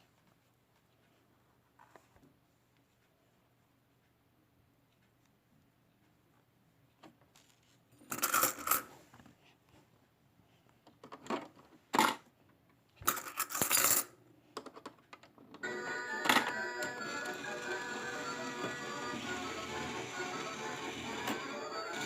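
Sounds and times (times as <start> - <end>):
coins clinking and dropping: 8.1 - 8.9, 13.1 - 14.1
toy machine tune: 15.6 - 22.0.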